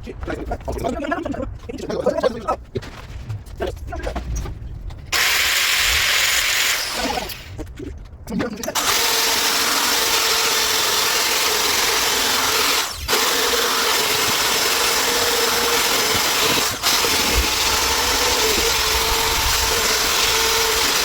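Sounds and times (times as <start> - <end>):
handheld power tool running: 5.2 - 7.6, 8.8 - 21.0.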